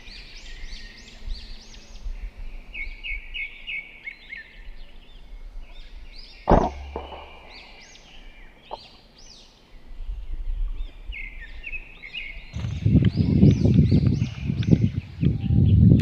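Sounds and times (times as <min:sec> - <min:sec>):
small birds chirping: 0:00.0 - 0:15.9
sharp crack: 0:06.5 - 0:07.9.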